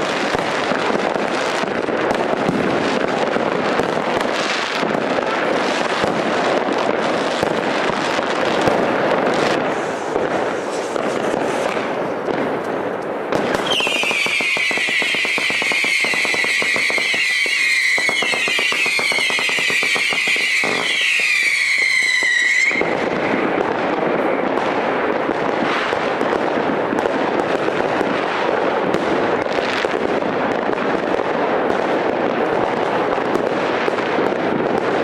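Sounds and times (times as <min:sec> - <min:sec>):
fireworks crackling and banging: 0:00.0 - 0:35.0
firework shrill wavering whistle: 0:09.4 - 0:12.0, 0:13.4 - 0:25.0.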